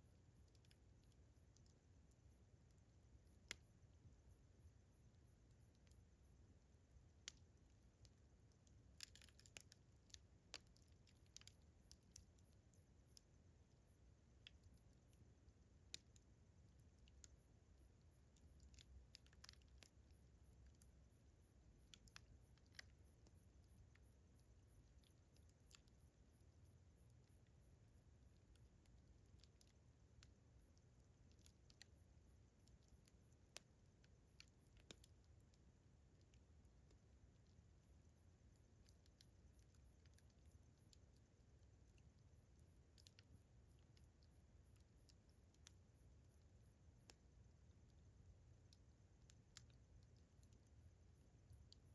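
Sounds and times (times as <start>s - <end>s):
cricket chirping: 0.0s - 51.9s
campfire crackling: 0.1s - 51.9s
fire pops and snaps: 3.3s - 3.7s, 7.0s - 17.4s, 18.2s - 26.0s, 28.3s - 37.6s, 42.8s - 45.8s.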